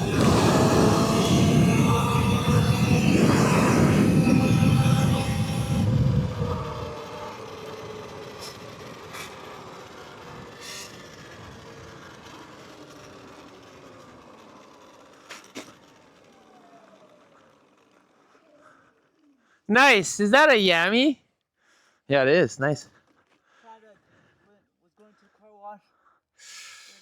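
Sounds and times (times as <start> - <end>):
dirt bike engine: 0.0 - 21.1.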